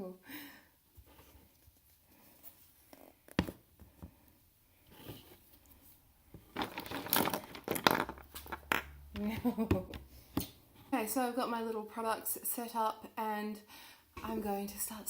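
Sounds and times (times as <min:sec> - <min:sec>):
crinkling and rustling: 0:00.9 - 0:11.0.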